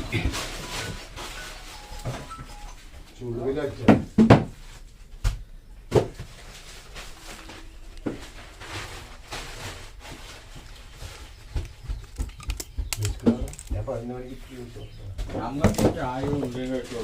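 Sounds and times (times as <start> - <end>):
knocks and handling noises: 3.8 - 17.0.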